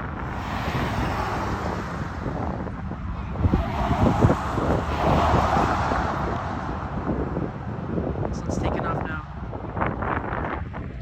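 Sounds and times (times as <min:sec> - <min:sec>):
distant jet engines rushing: 0:00.0 - 0:10.6
wind buffeting microphone: 0:00.0 - 0:11.0.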